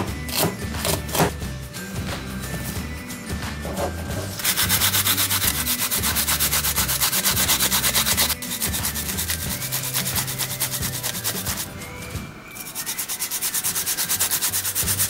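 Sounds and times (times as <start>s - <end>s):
onion rasping on a grater: 4.4s - 11.7s, 12.6s - 15.0s.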